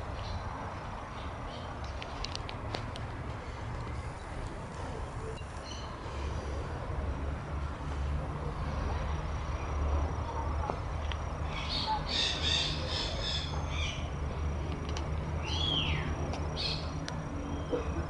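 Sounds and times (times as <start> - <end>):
birds chirping: 3.9 - 6.3, 11.4 - 14.4, 15.4 - 18.0.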